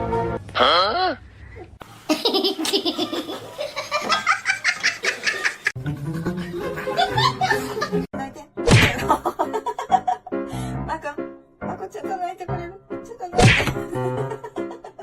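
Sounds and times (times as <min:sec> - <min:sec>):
background music: 0:00.0 - 0:00.4, 0:05.8 - 0:15.0
people laughing: 0:02.1 - 0:08.1, 0:09.0 - 0:10.3, 0:14.1 - 0:15.0.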